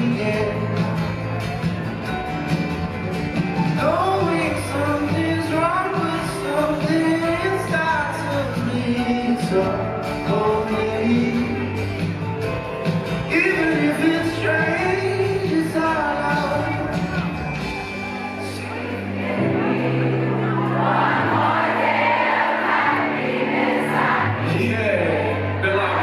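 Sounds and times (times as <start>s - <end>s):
live band playing: 0.0s - 26.0s.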